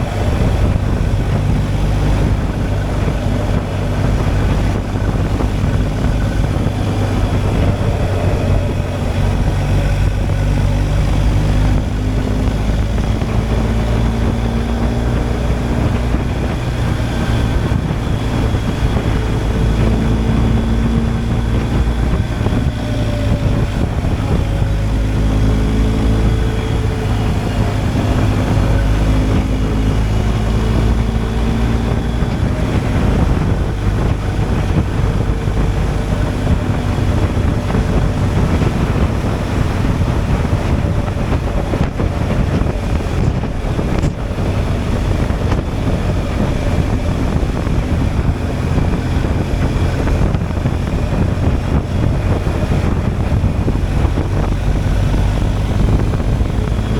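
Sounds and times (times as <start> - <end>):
motorcycle engine running: 0.0 - 56.9
wind buffeting microphone: 0.0 - 56.9.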